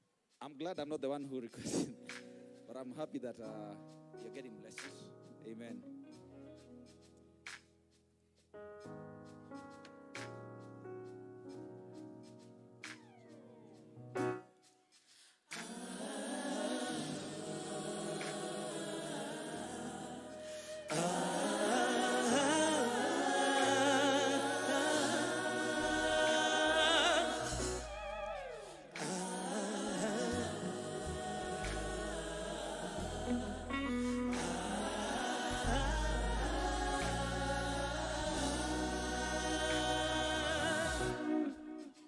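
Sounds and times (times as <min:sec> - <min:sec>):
choir singing gospel song: 0:15.5 - 0:42.0
bass accompaniment: 0:27.4 - 0:28.6, 0:30.3 - 0:41.2.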